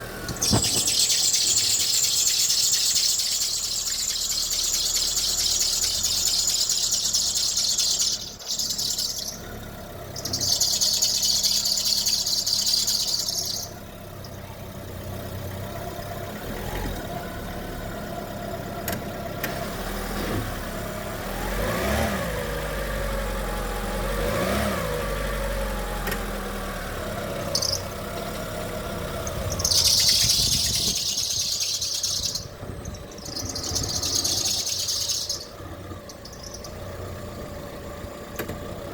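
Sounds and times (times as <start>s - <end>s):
car high-pitched squeal: 0.3s - 13.8s, 29.2s - 36.8s
car engine revving: 19.4s - 38.9s.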